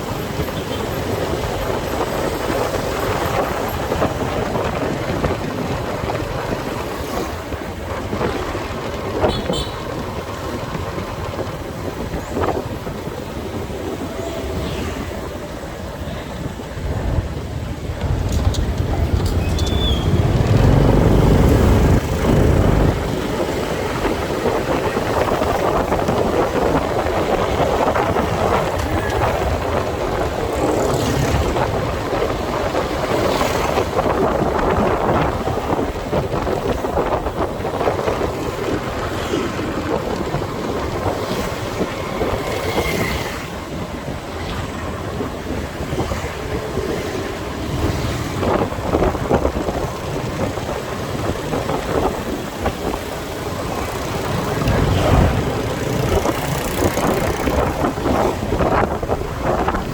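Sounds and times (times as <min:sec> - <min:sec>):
wind buffeting microphone: 0:00.0 - 0:59.9
high-pitched traffic sounds: 0:16.8 - 0:26.1, 0:52.1 - 0:59.9
motorcycle engine: 0:17.8 - 0:24.8, 0:52.7 - 0:59.0.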